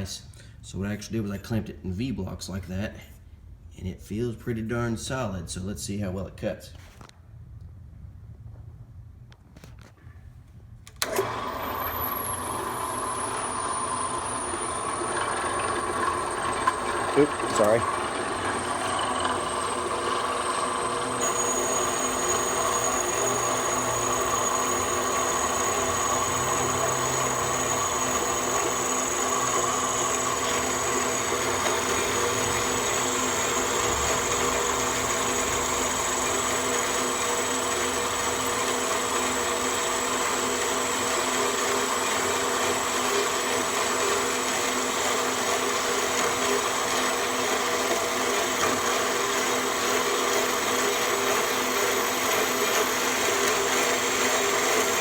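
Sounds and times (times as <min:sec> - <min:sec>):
thin high whine: 0:11.0 - 0:40.3
bandsaw cutting: 0:16.6 - 0:42.8.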